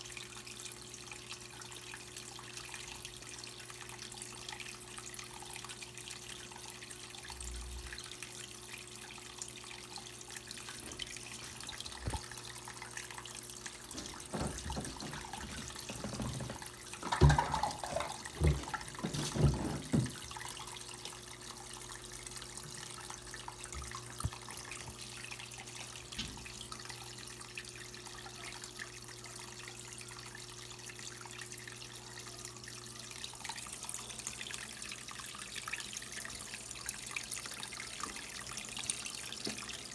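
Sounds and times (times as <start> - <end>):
water running into washing machine: 0.0 - 39.9
knocks and sloshing: 10.8 - 12.4, 13.7 - 20.6.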